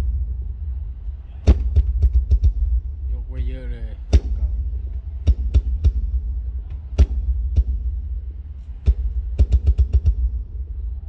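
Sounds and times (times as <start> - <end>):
kick drum thumps: 1.4 - 2.9, 4.1 - 8.2, 8.8 - 10.6.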